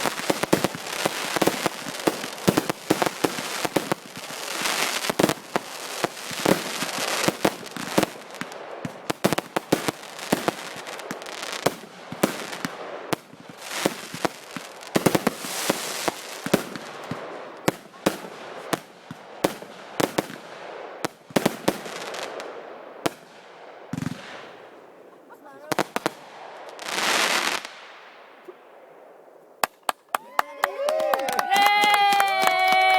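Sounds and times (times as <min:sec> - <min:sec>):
fireworks cracks and pops: 0:00.0 - 0:20.4, 0:29.6 - 0:32.9
fireworks crackling hiss: 0:00.0 - 0:29.7.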